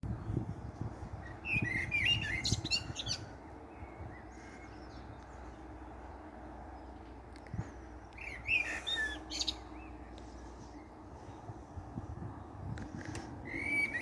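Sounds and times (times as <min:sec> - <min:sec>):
low outdoor rumble: 0:00.0 - 0:14.0
songbird chirping: 0:00.2 - 0:14.0.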